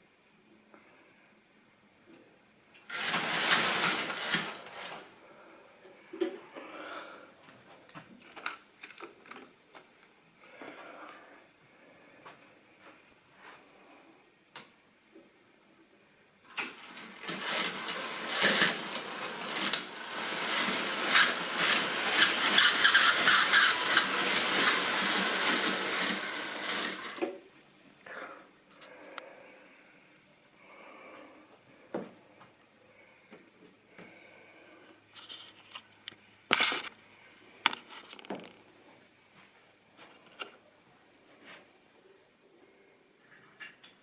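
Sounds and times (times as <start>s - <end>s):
model train wheels rattling: 2.9s - 5.1s, 16.5s - 27.2s.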